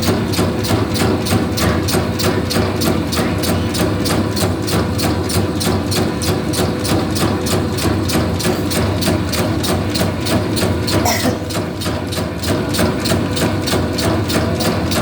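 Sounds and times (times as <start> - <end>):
rapid machine clacking: 0.0 - 15.0.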